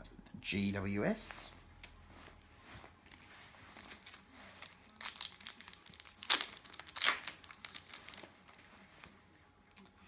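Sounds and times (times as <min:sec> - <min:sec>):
wrapper crinkling: 0:02.1 - 0:09.2.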